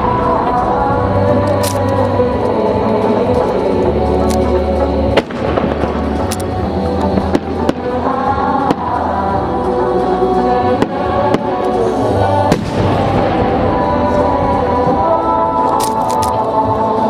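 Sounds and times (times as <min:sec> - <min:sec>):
music over loudspeakers: 0:00.0 - 0:17.0
fireworks cracking: 0:10.7 - 0:15.0.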